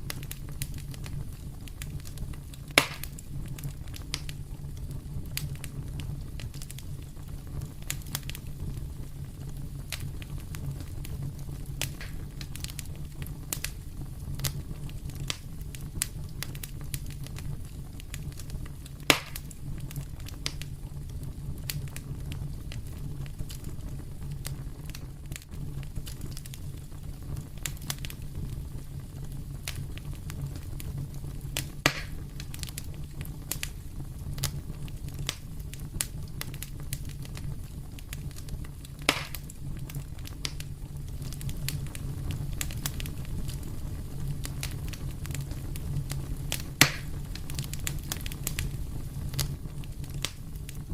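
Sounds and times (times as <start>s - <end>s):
fire crackling in a fireplace: 0.0s - 50.9s
sharp pops: 2.8s - 3.2s, 12.0s - 12.2s, 19.1s - 19.5s, 31.8s - 32.2s, 39.1s - 39.5s, 46.8s - 47.1s.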